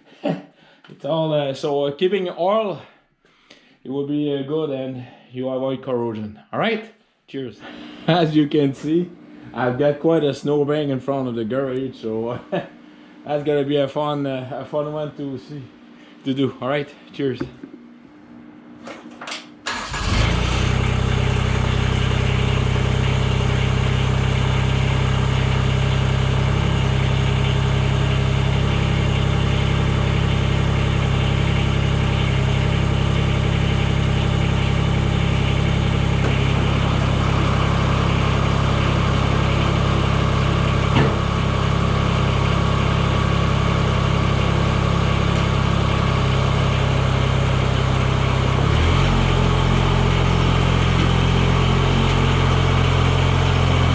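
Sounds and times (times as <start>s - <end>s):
tractor diesel engine running: 19.7s - 53.9s.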